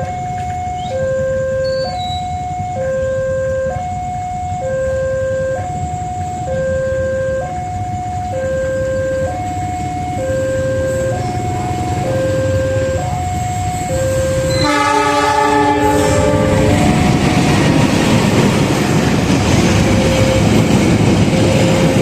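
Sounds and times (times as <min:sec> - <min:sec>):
two-tone level-crossing alarm: 0:00.0 - 0:22.0.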